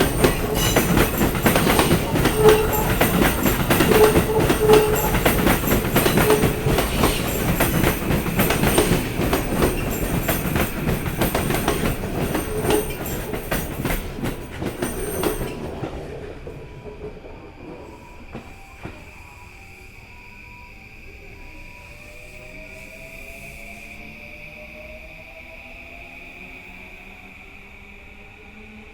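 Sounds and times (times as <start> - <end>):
train wheels clacking over rail joints: 0.0 - 19.0.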